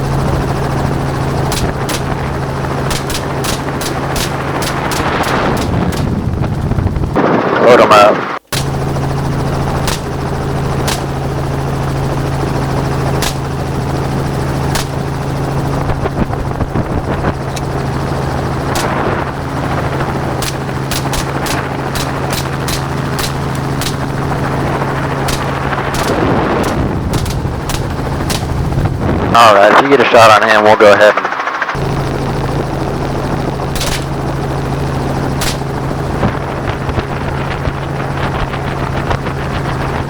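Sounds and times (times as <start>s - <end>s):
helicopter engine and rotor hum: 0.0s - 40.0s
rifle shots: 1.5s - 6.2s, 9.8s - 10.2s, 10.8s - 11.2s, 13.2s - 13.6s, 14.7s - 15.2s, 18.6s - 28.7s, 33.7s - 34.2s, 35.4s - 35.8s.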